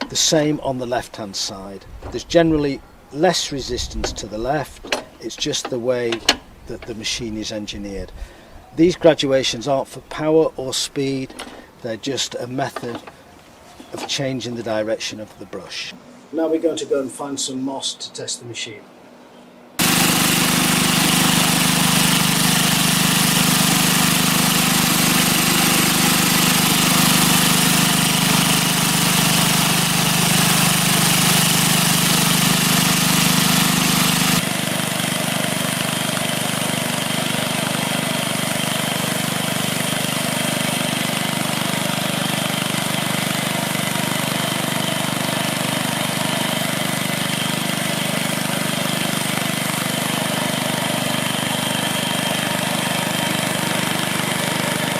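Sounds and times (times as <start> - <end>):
small engine running steadily: 19.8 - 54.9.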